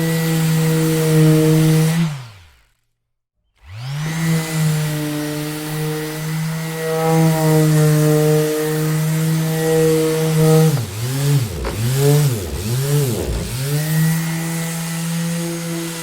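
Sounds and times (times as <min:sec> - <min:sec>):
electric sander motor hum: 0:03.6 - 0:16.0.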